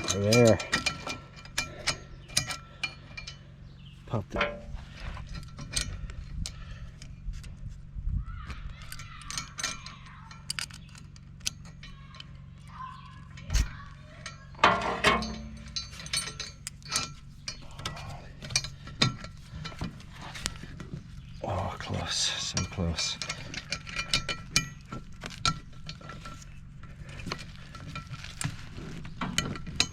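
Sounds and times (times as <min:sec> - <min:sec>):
steel track links clinking: 0:00.0 - 0:07.2, 0:08.6 - 0:29.9
steady low hum: 0:00.0 - 0:29.9
ratchets clicking: 0:08.6 - 0:12.4.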